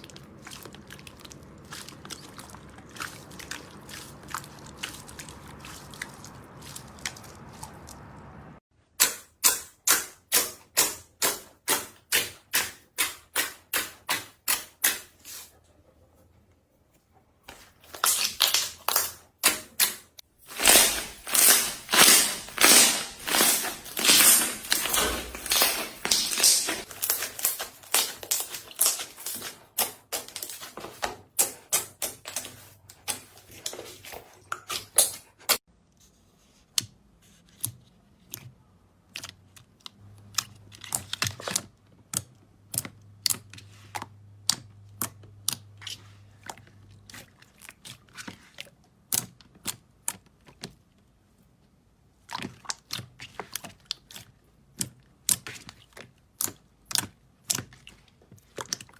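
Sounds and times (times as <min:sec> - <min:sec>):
slime squeezed crackling and popping: 0:20.5 - 0:29.5.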